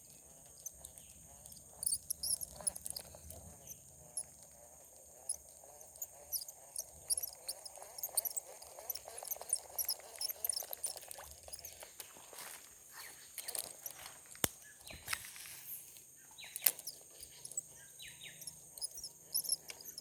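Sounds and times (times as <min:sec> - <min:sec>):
insects droning: 0:00.0 - 0:20.0
frogs trilling: 0:01.4 - 0:04.4, 0:05.1 - 0:11.9, 0:16.2 - 0:20.0.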